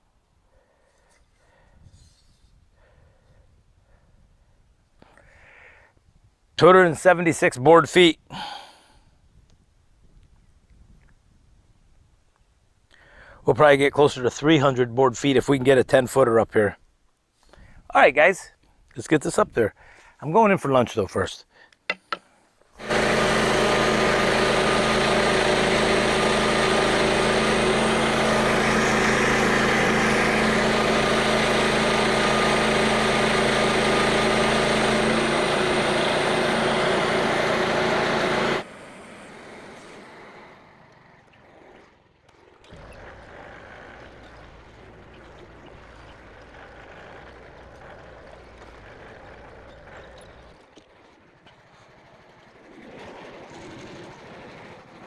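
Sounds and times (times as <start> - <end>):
tractor engine running: 22.7 - 55.0.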